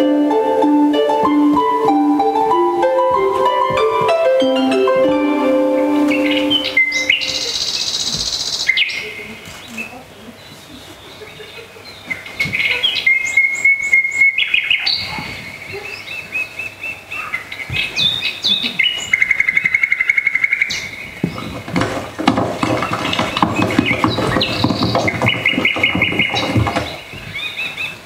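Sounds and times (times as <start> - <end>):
recorded bird calls over speakers: 5.8 - 21.7, 22.8 - 28.0.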